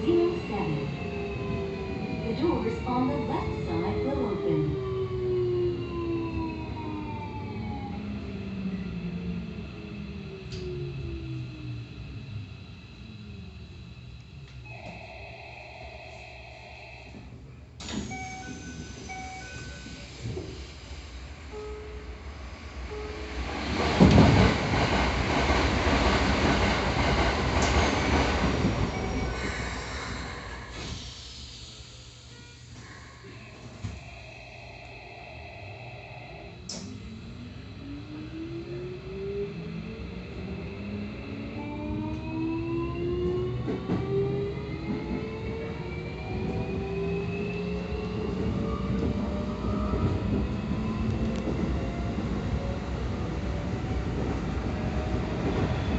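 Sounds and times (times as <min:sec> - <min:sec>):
train wheels on rail: 0:17.1 - 0:21.7, 0:22.8 - 0:34.4, 0:38.1 - 0:55.9.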